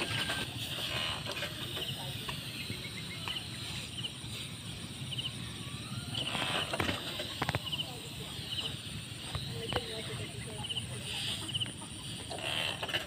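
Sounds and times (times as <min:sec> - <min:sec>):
small bird chirps: 0:01.8 - 0:04.2.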